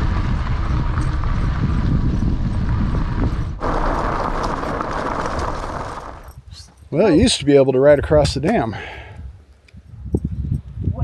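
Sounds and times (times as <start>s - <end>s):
e-bike rumbling over dirt track: 0.0s - 7.4s.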